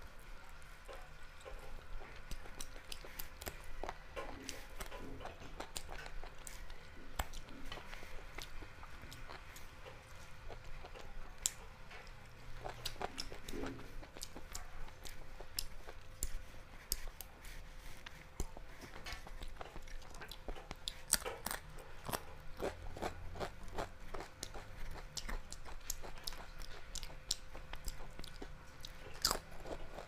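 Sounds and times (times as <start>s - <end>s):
person chewing with wet mouth clicks: 0.6s - 17.3s, 18.0s - 30.0s.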